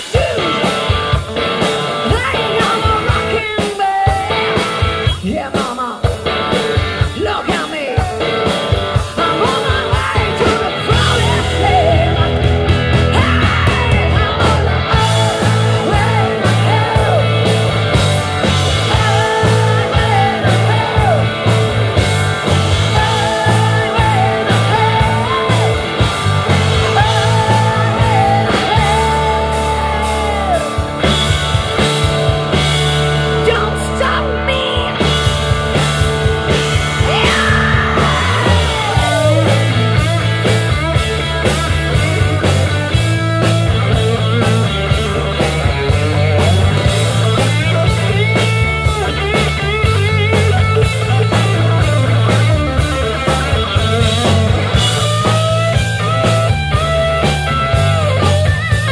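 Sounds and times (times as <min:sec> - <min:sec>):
person singing: 0:00.0 - 0:01.1, 0:02.1 - 0:04.6, 0:07.0 - 0:17.7, 0:18.8 - 0:21.7, 0:22.8 - 0:26.1, 0:26.8 - 0:31.1, 0:33.4 - 0:35.2, 0:36.9 - 0:40.6
rock band playing: 0:00.0 - 0:58.9.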